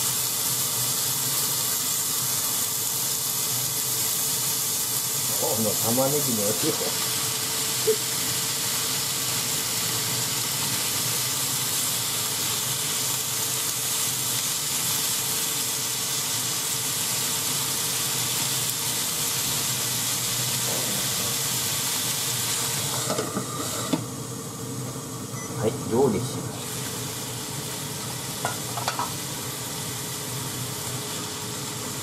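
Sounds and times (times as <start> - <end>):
onions sizzling in a frying pan: 0.0 - 32.0
metal lid knocking onto pan: 28.4 - 29.1.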